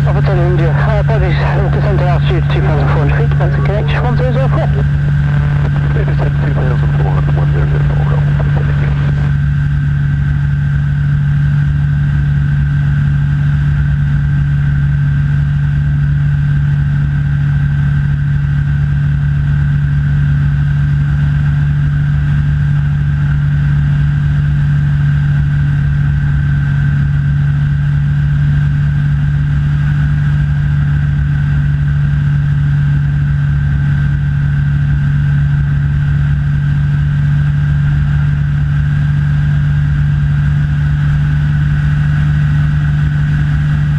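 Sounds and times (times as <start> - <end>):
thin steady whine: 0.0 - 11.2
light aircraft engine droning: 0.0 - 43.9.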